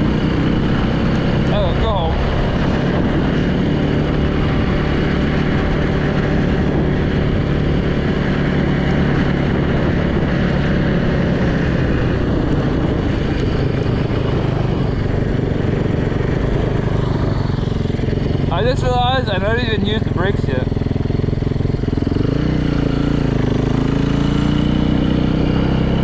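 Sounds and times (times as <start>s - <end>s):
wind rush: 0.0s - 19.8s
dirt bike engine running: 0.0s - 26.0s.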